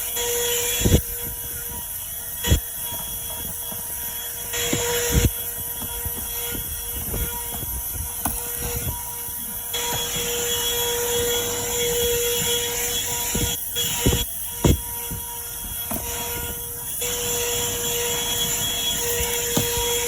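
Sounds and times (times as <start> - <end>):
car vacuum running: 0.0 - 20.0.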